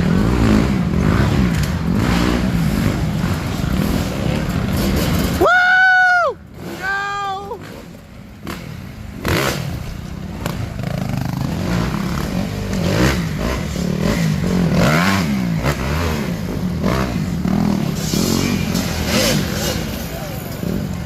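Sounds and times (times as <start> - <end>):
dirt bike engine revving: 0.0 - 5.5, 6.5 - 21.0.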